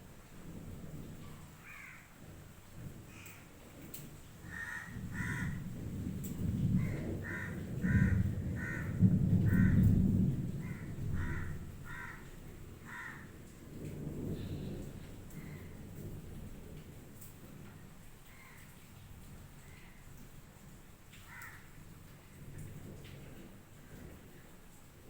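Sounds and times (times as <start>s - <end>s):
crow cawing: 1.6s - 2.1s, 3.1s - 3.4s, 4.4s - 5.7s, 6.8s - 9.8s, 10.6s - 13.3s, 21.3s - 21.7s.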